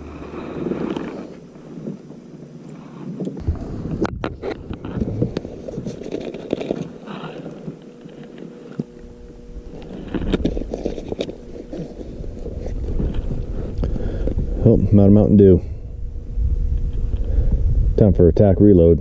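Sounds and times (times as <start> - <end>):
knocks clicks and scrapes of gear: 0.2 - 14.5
wind on microphone: 3.4 - 6.0, 9.1 - 19.0.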